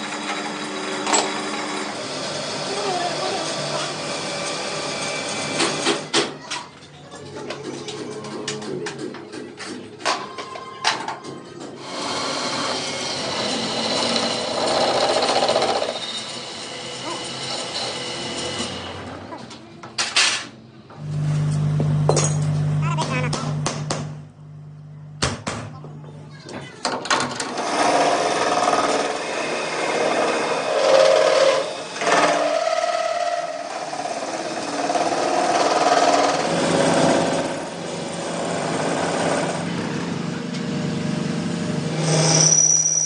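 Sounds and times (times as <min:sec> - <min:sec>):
power tool on metal: 0:11.8 - 0:19.0, 0:27.4 - 0:39.7.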